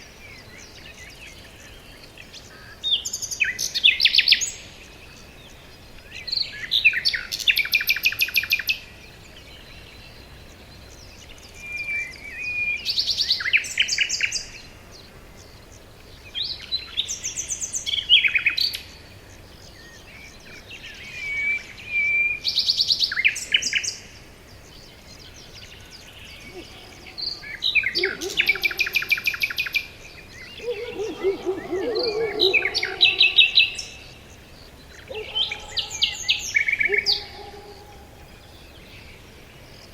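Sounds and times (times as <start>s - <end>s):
songbird trilling phrase: 25.6s - 38.6s.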